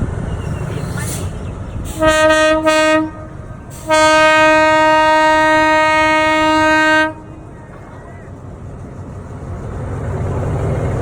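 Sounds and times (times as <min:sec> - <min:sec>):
running train noise: 0:00.0 - 0:11.0
train horn blasts: 0:01.9 - 0:07.4.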